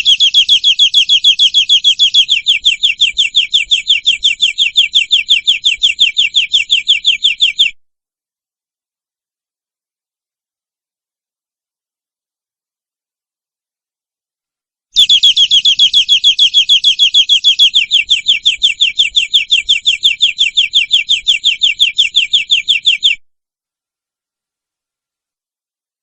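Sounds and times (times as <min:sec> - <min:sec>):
canary singing a trill: 0:00.0 - 0:07.8, 0:15.0 - 0:23.2.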